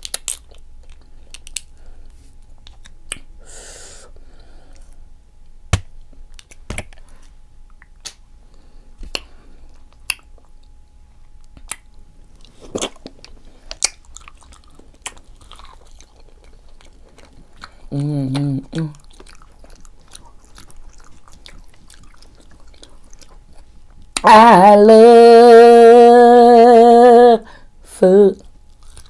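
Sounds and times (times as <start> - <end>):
person chewing food: 0.0 - 3.4, 6.0 - 24.3, 28.4 - 29.0
wet mouth clicks and smacks: 2.6 - 3.3, 7.7 - 8.2, 9.0 - 9.3, 9.9 - 10.7, 11.4 - 12.0, 12.8 - 14.4.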